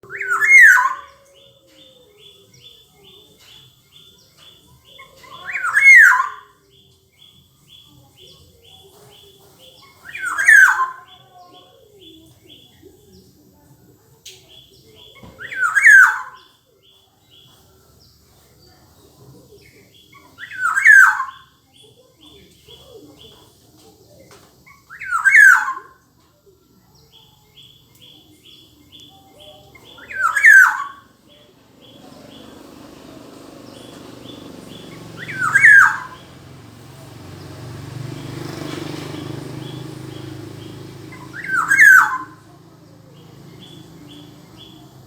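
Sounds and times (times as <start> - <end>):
oriole calling: 29.7 - 45.0.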